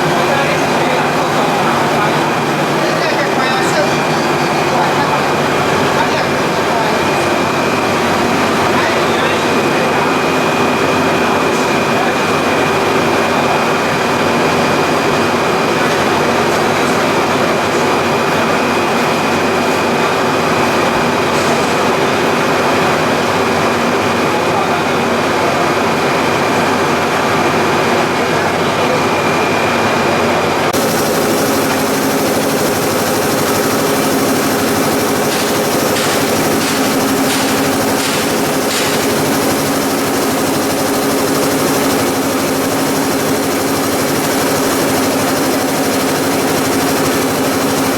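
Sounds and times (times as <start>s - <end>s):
industrial machinery running: 0.0s - 19.8s, 30.6s - 47.9s
machine high whine: 30.8s - 47.9s.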